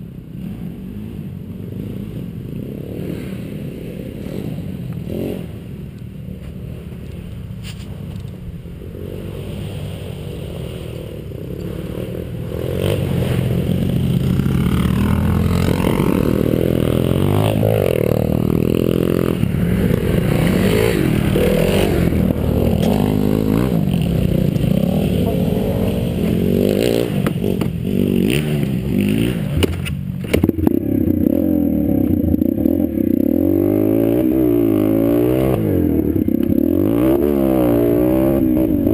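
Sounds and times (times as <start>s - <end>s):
pit bike engine revving: 8.8s - 38.9s.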